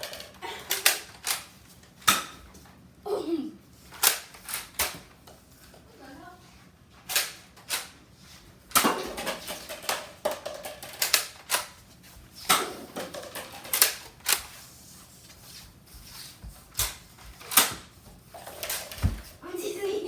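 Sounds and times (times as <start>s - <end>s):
sharp plastic clicks and clacks: 8.7s - 11.8s, 12.5s - 14.5s.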